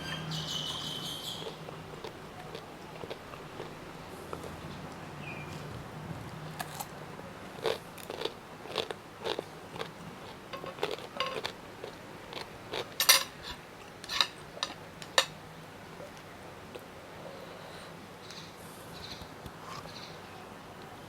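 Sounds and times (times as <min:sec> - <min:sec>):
crunchy chewing: 0:00.8 - 0:14.8.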